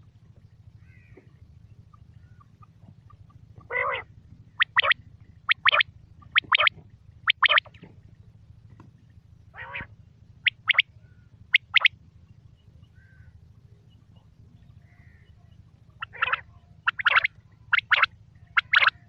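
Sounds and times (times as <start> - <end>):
low hum: 0.0 - 19.0
quail calling: 0.8 - 7.8, 9.5 - 12.0, 12.8 - 13.4, 14.7 - 19.0.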